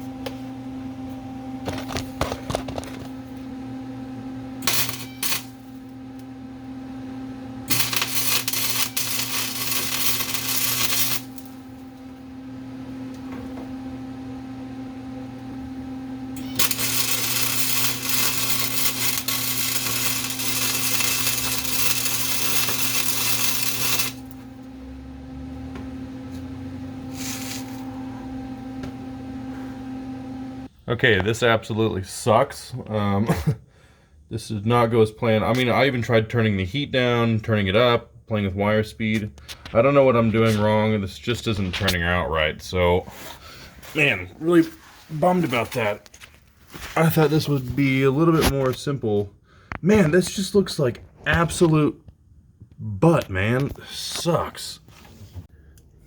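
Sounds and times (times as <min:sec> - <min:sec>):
steady hum: 0:00.2 - 0:33.5
welder arc crackling: 0:04.6 - 0:06.3, 0:07.6 - 0:12.1, 0:16.4 - 0:24.7, 0:27.1 - 0:27.9.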